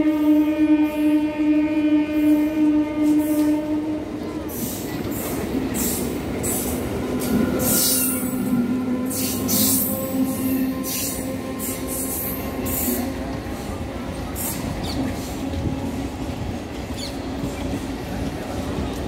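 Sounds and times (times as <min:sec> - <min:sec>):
train horn: 0:00.0 - 0:04.5, 0:07.3 - 0:14.4.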